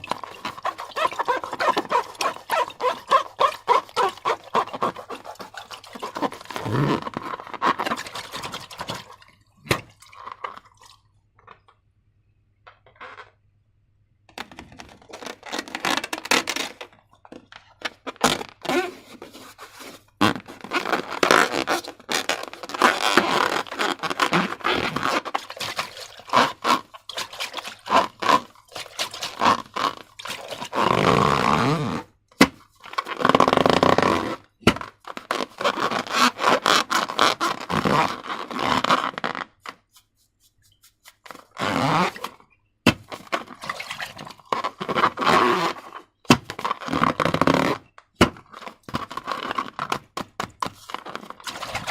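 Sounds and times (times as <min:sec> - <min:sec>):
slime squishing by hand: 0:00.0 - 0:10.6.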